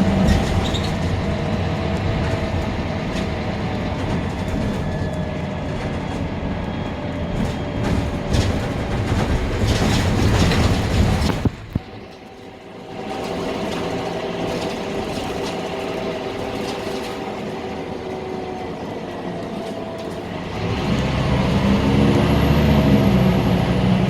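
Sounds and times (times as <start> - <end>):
bus diesel engine droning: 0.0 - 24.0
road noise: 0.0 - 24.0
body rattles and knocks: 7.4 - 12.0.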